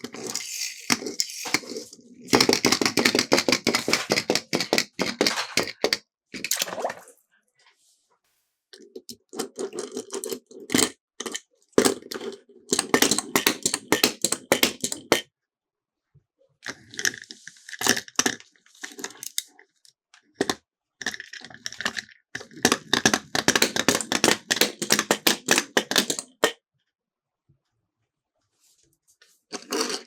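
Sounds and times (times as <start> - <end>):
toy cars clattering on plastic: 0.0 - 6.5, 8.9 - 15.3, 16.7 - 19.5, 20.4 - 26.6, 29.5 - 30.0.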